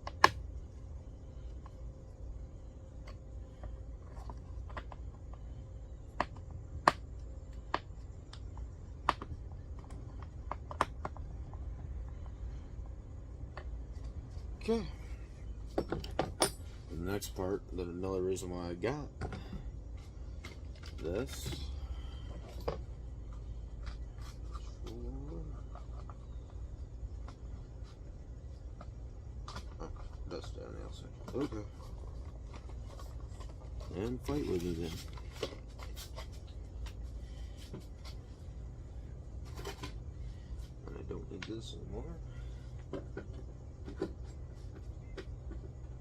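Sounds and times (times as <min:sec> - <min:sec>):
low steady rumble: 0:00.0 - 0:46.0
steady low hum: 0:00.0 - 0:46.0
clicks and knocks of parts handled: 0:19.2 - 0:26.6.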